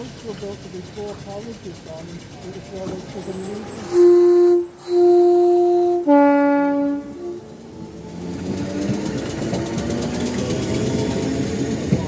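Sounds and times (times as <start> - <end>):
train rumbling: 0.0 - 12.0
two-tone train horn: 3.8 - 7.5.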